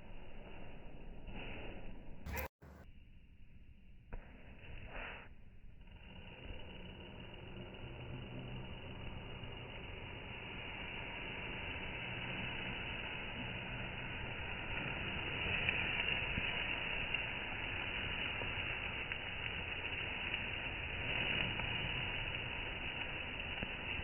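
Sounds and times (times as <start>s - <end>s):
small gear motors whirring: 5.8s - 24.0s.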